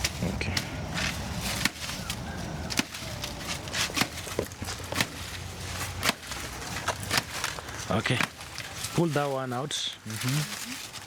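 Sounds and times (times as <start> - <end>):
machete chopping plant trunk: 0.0 - 8.6.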